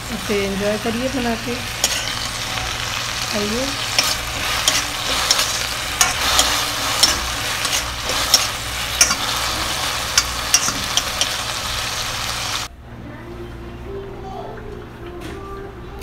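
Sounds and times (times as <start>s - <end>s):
potatoes sizzling in a pan: 0.0s - 12.7s.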